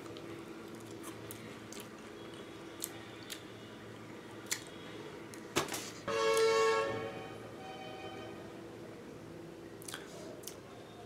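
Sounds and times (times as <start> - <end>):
man chewing: 0.0 - 6.5, 9.8 - 10.6
wet mouth clicks: 4.4 - 4.7, 9.8 - 10.6.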